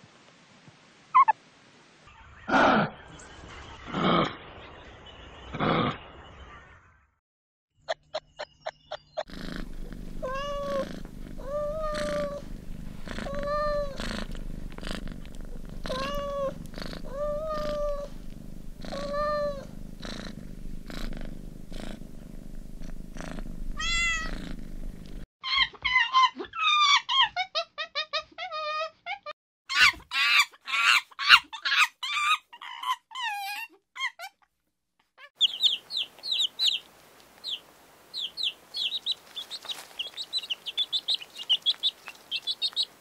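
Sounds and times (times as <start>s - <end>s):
low steady rumble: 9.3s - 25.2s
cat chirping meows: 10.2s - 12.4s, 15.8s - 18.1s, 23.8s - 24.4s.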